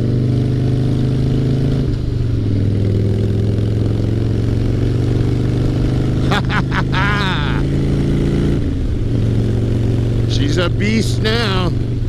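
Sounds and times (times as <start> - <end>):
motorcycle engine running loud: 0.0 - 12.0.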